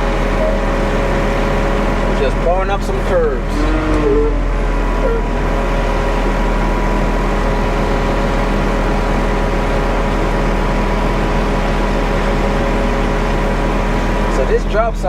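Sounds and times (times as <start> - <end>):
diesel engine running: 0.0 - 15.0
mixer drum rumbling: 0.0 - 15.0.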